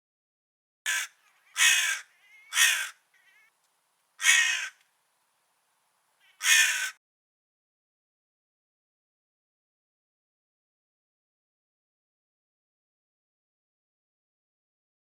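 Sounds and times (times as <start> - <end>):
crow cawing: 0.9 - 3.5, 4.2 - 4.8, 6.2 - 7.0.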